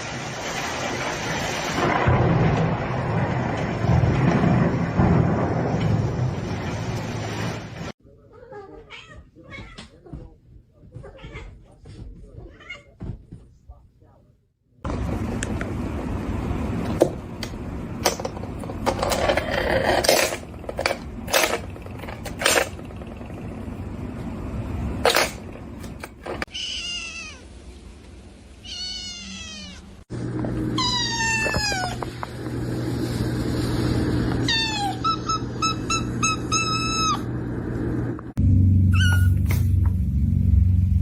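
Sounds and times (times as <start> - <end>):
cats meowing: 8.2 - 10.3, 10.9 - 11.7, 12.4 - 13.0, 26.5 - 27.4, 28.6 - 30.0, 30.8 - 32.1, 34.4 - 35.6
knocks and clattering: 18.0 - 24.2.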